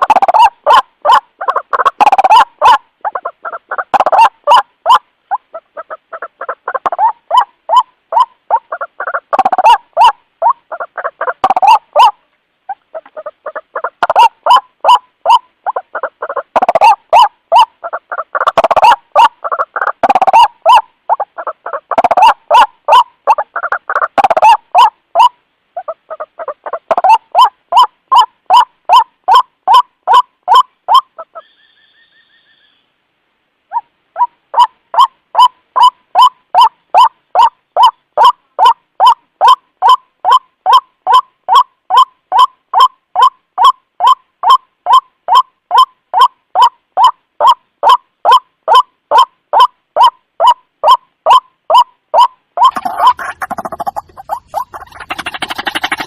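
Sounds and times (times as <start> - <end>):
faint steady tone: 0.0 - 56.0
bird harsh croaking call: 29.3 - 32.9, 46.2 - 56.0.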